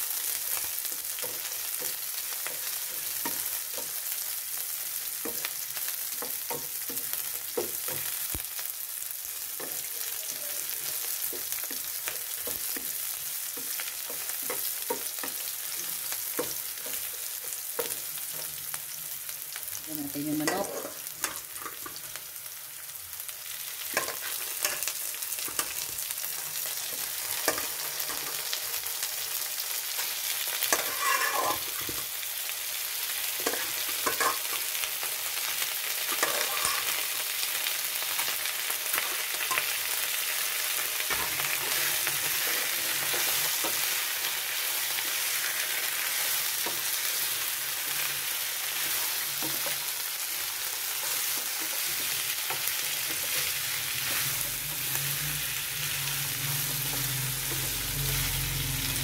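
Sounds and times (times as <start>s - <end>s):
chicken and onions sizzling in oil: 0.0s - 59.0s
spatula scraping a pan: 23.7s - 29.1s, 29.9s - 32.1s, 33.4s - 34.7s, 36.1s - 37.1s, 41.0s - 44.0s, 50.8s - 59.0s.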